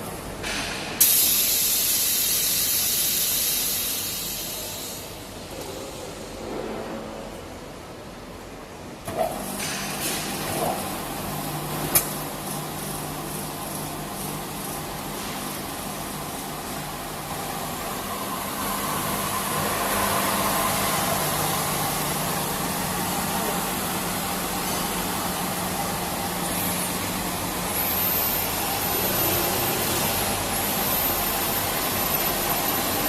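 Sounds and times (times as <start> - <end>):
milling machine hum: 9.4 - 33.0.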